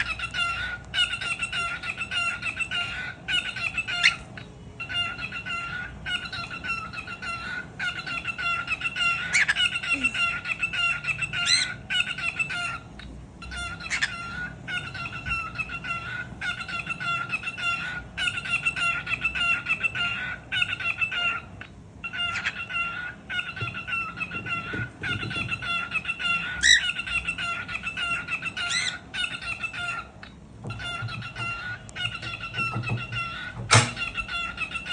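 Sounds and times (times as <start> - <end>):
cockatiel chattering: 0.0 - 34.9.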